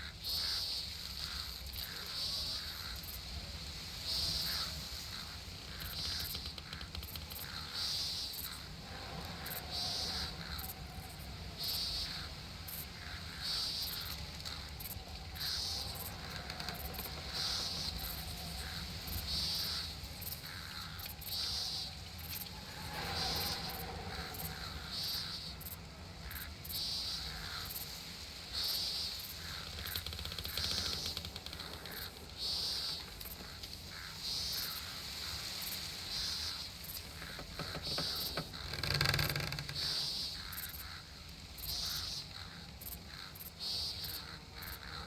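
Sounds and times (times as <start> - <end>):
insect buzzing call: 0.0 - 45.0
low background rumble: 3.4 - 27.8.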